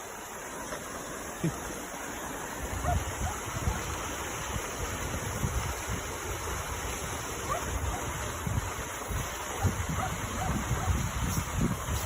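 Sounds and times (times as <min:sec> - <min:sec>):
rushing outdoor noise: 0:00.0 - 0:12.0
wind buffeting microphone: 0:02.6 - 0:12.0.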